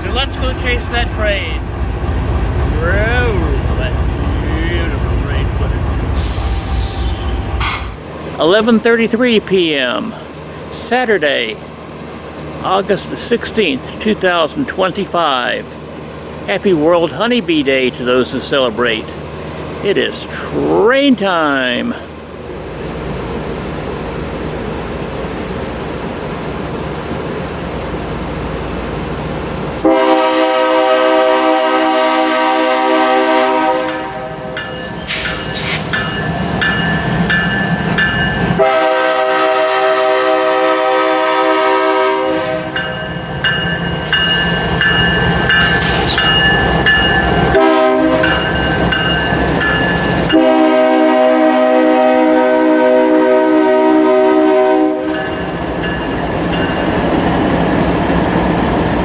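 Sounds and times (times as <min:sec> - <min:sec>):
rumble of approaching train: 0:00.0 - 0:59.0
locomotive air horn blasts: 0:29.8 - 0:34.6, 0:38.6 - 0:42.8, 0:47.5 - 0:48.4, 0:50.3 - 0:55.2.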